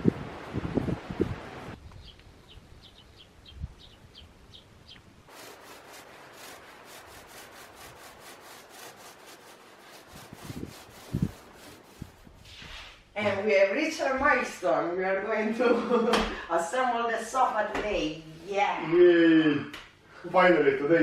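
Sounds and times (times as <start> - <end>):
small bird chirping: 1.8 - 5.1.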